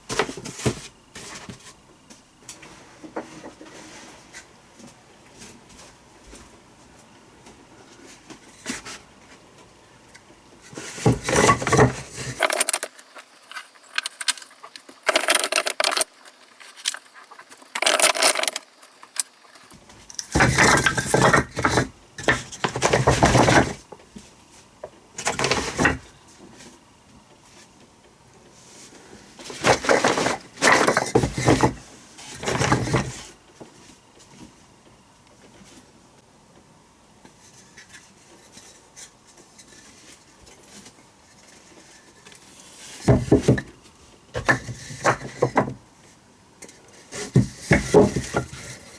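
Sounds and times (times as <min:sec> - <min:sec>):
hard objects clattering: 0:10.9 - 0:23.8.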